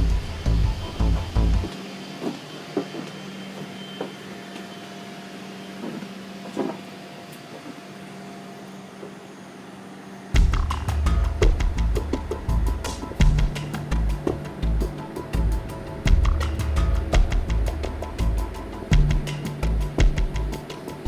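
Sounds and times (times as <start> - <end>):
cabin air system hum: 0.0 - 1.7, 10.4 - 21.0.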